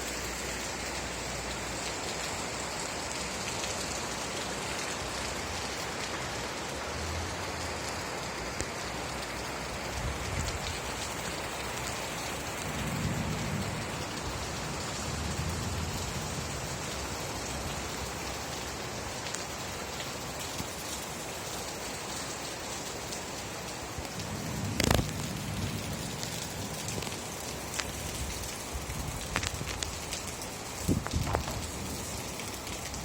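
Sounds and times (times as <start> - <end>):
steady rain falling: 0.0 - 33.0
sharp raindrop ticks: 0.9 - 33.0
low rumbles: 24.0 - 27.0.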